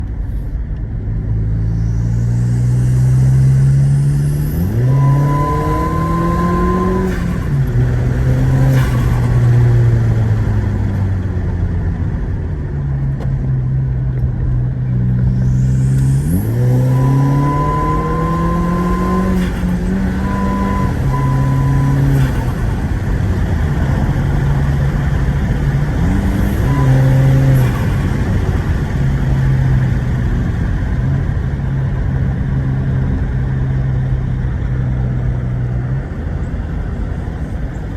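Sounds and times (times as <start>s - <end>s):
turbocharged engine accelerating: 0.8s - 37.9s
turbo whistle: 3.9s - 7.6s, 15.4s - 22.6s, 26.1s - 28.1s.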